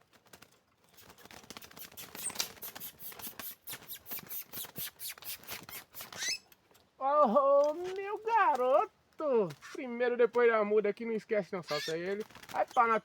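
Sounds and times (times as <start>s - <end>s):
bird clicking and scratchy notes: 0.0s - 6.9s, 11.6s - 13.0s.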